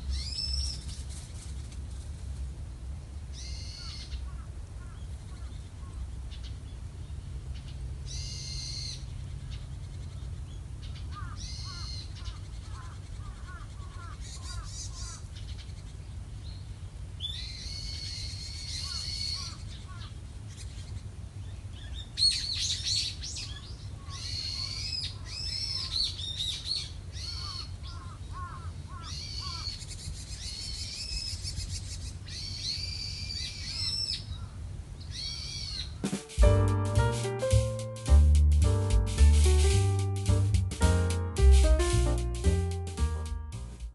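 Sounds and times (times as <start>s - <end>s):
steady low rumble: 36.4s - 43.9s.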